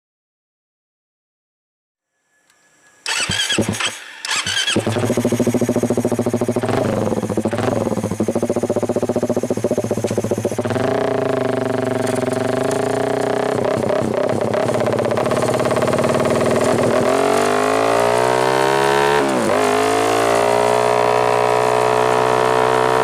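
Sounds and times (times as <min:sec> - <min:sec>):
electric starter whining: 0:02.9 - 0:18.7
motorcycle engine idling: 0:03.1 - 0:17.4.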